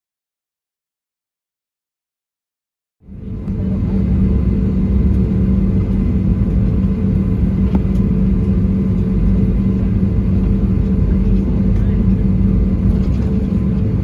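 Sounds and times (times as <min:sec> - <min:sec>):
airliner cabin engine rumble: 0:03.0 - 0:14.0
constant hum: 0:03.0 - 0:14.0.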